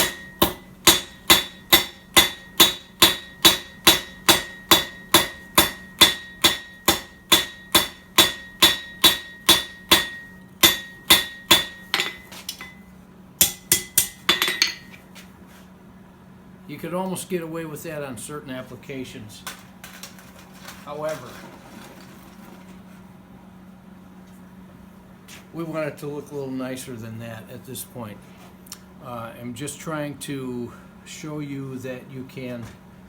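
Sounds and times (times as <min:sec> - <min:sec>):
hammer striking steel on anvil: 0:00.0 - 0:15.0.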